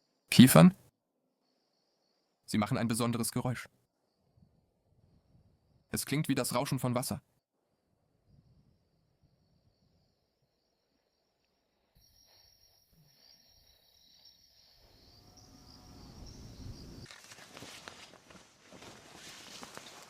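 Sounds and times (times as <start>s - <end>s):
faint high insect trill: 1.0s - 6.6s, 7.6s - 18.2s
wind rushing through pine trees: 15.4s - 20.0s.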